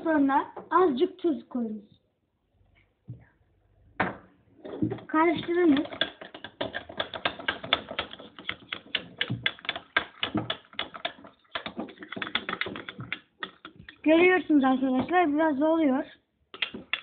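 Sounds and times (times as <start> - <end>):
utensil clicking against container: 5.8 - 14.0, 16.6 - 17.0.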